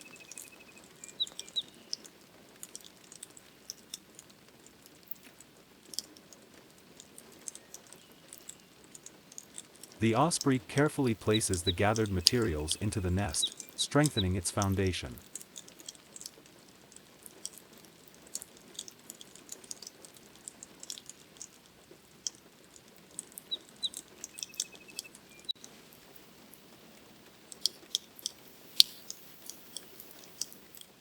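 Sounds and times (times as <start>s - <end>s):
bird chirping: 0.0s - 2.0s, 10.0s - 15.2s, 23.4s - 25.6s
raindrops ticking and tapping: 0.0s - 31.0s.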